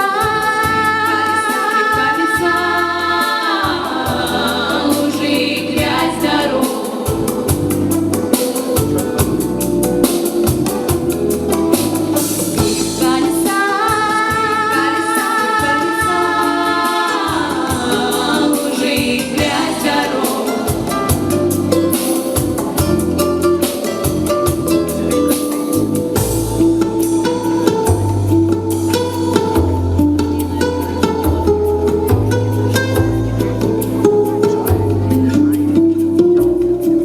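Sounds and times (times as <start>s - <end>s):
girls singing in harmony: 0.0s - 8.6s, 12.6s - 22.3s
backing track with drums: 0.0s - 37.0s.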